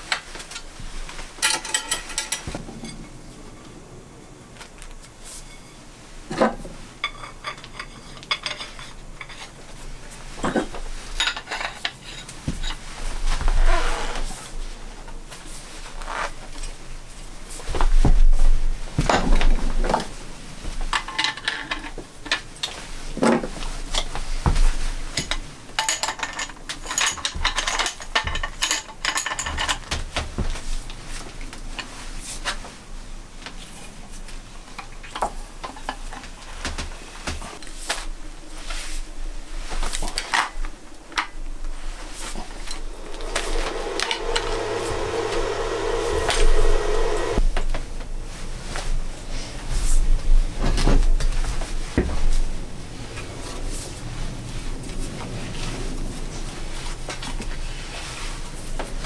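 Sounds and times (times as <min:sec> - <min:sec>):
steady mechanical hum: 0:41.7 - 0:59.0.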